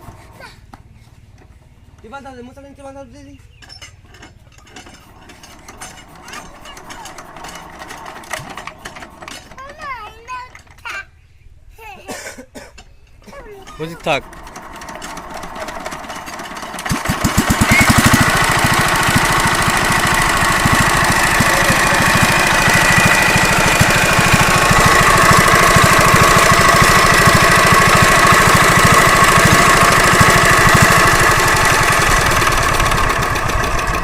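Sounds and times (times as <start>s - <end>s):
diesel pump engine starting and running: 4.0s - 10.8s, 13.6s - 34.0s.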